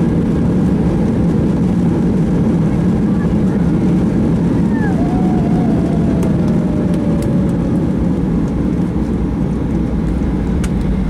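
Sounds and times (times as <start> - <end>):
aircraft engines rumbling: 0.0 - 11.0
whine falling in pitch: 4.7 - 9.0.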